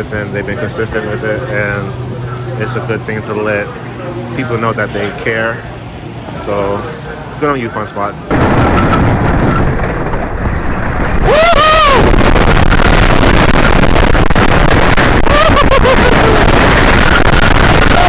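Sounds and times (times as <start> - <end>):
wind rushing over microphone: 8.3 - 18.0
rider screaming: 11.2 - 12.3, 15.0 - 18.0.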